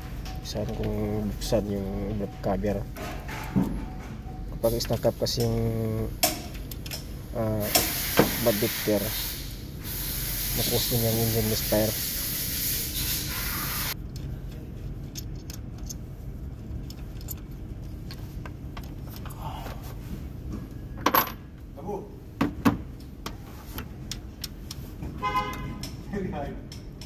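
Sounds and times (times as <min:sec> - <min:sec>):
steady low hum: 0:00.0 - 0:27.0
tools and bolts clinking on metal: 0:00.2 - 0:07.9, 0:14.2 - 0:16.0, 0:16.8 - 0:19.4, 0:21.0 - 0:21.5, 0:25.4 - 0:27.0.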